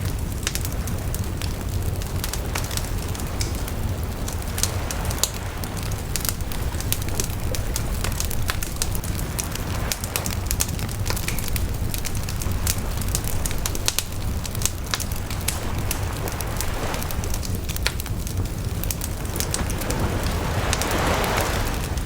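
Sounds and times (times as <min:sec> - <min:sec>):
bonfire crackling: 0:00.0 - 0:22.0
low rumble: 0:00.0 - 0:22.0.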